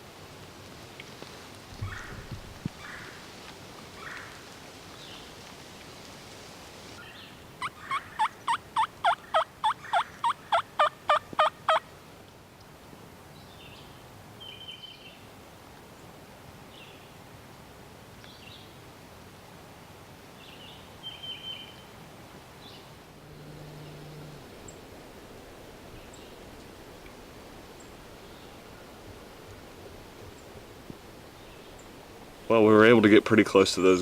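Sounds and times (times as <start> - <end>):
turkey call hen yelps: 7.6 - 11.8.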